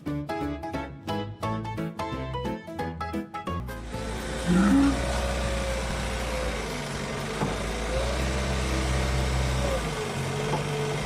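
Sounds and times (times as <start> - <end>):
low engine drone: 3.7 - 10.0.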